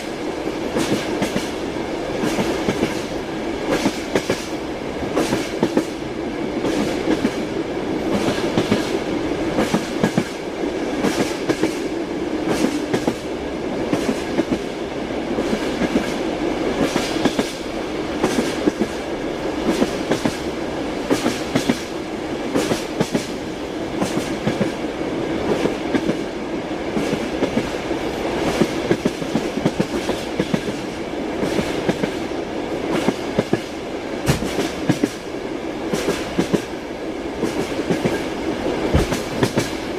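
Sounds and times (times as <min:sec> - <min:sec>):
train rolling rumble: 0:00.0 - 0:39.9
train wheels clacking on rails: 0:00.0 - 0:39.9.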